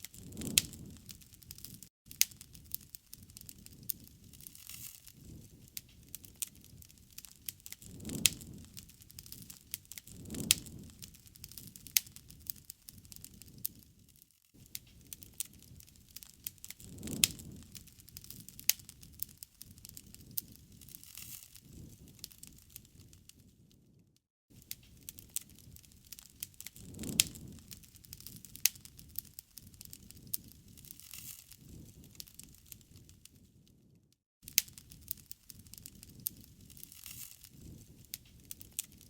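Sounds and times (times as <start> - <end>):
low rumble of flame: 0.0 - 24.0, 24.6 - 39.0
wood fire crackling and popping: 0.0 - 39.0.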